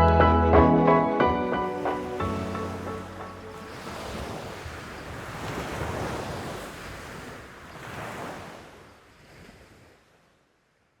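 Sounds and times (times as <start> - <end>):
sea water rushing and splashing: 0.0 - 10.3
wind buffeting microphone: 1.9 - 9.9.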